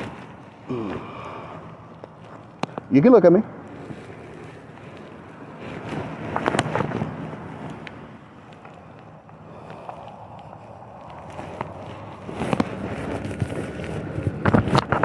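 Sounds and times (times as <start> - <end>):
wind on microphone: 0.0 - 15.0
short clicks and rustles: 3.7 - 15.0.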